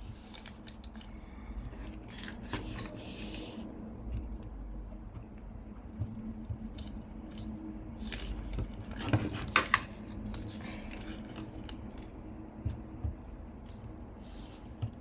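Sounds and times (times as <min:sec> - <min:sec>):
paper rustling: 0:00.0 - 0:01.1, 0:01.7 - 0:03.6, 0:08.0 - 0:12.1.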